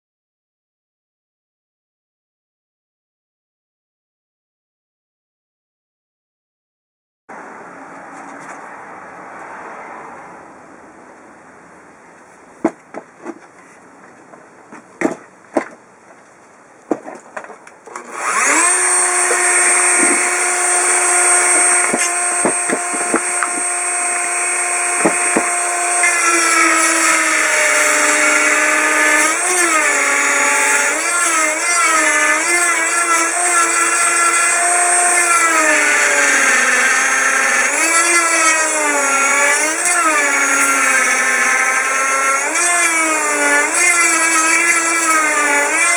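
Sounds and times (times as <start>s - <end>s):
knocks: 12.6s - 13.5s, 20.0s - 20.3s, 21.8s - 23.7s, 25.0s - 25.5s.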